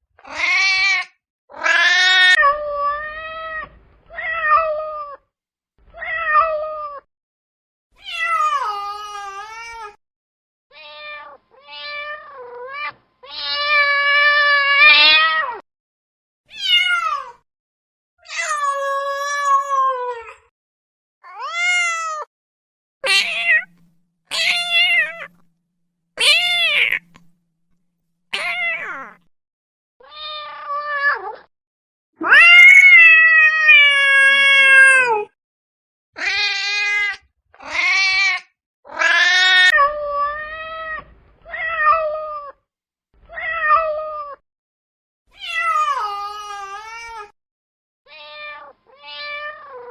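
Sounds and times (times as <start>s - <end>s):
cat meowing: 0.2s - 5.2s, 5.9s - 7.1s, 8.0s - 10.0s, 10.7s - 15.6s, 16.5s - 17.4s, 21.2s - 22.3s, 23.0s - 25.5s, 26.2s - 27.3s, 28.3s - 29.3s, 30.0s - 31.5s, 32.2s - 35.4s, 36.2s - 42.6s, 43.3s - 44.4s, 45.3s - 47.4s, 48.1s - 49.9s.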